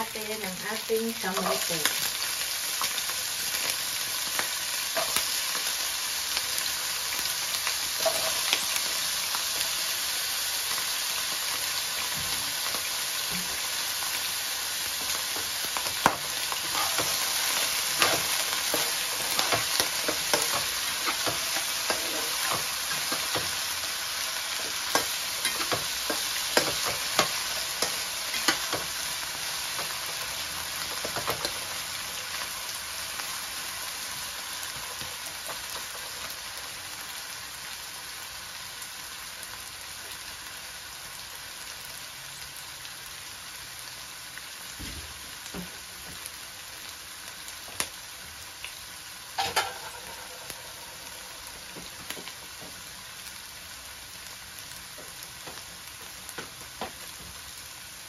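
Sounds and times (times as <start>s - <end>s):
food sizzling in oil: 0.0s - 58.0s
metal spatula scraping a pan: 8.0s - 8.6s, 16.5s - 23.6s, 49.4s - 51.6s.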